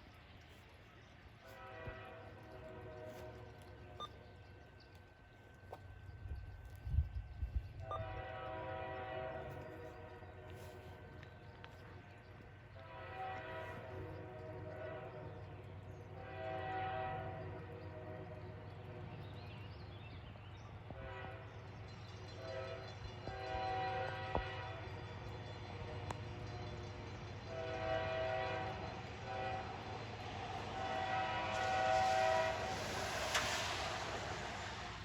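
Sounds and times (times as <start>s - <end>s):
diesel locomotive rumble: 0.0s - 35.0s
rush of approaching train: 0.0s - 35.0s
locomotive air horn blasts: 1.4s - 4.0s, 7.8s - 11.0s, 12.8s - 15.3s, 16.2s - 18.4s, 20.9s - 21.6s, 22.4s - 24.9s, 27.5s - 30.0s, 30.6s - 33.4s.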